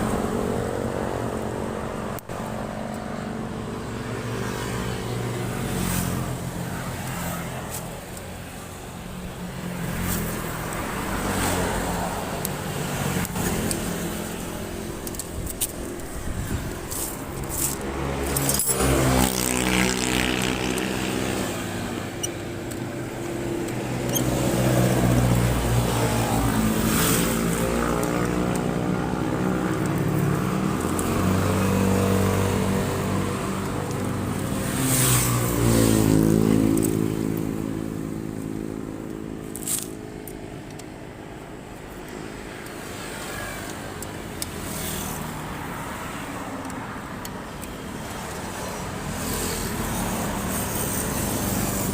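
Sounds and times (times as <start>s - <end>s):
motorcycle engine revving: 9.7s - 39.9s.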